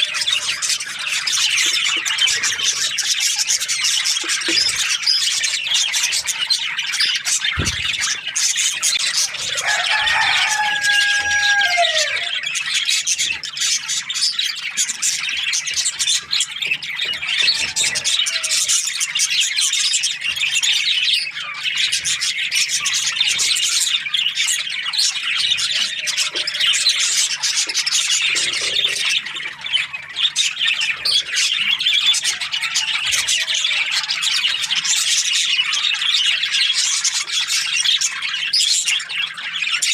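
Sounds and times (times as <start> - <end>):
budgerigars chirping and chattering: 0.0 - 39.9
low thump: 7.6 - 8.1.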